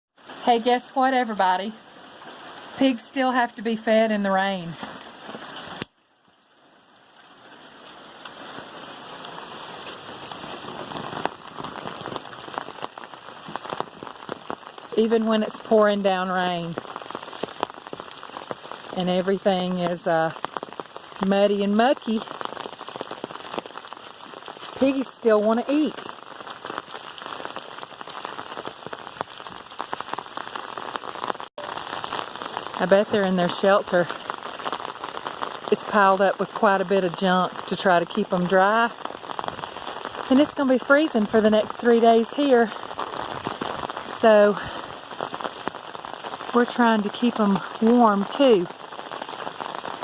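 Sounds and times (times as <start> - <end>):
rain pouring: 0.2 - 50.0.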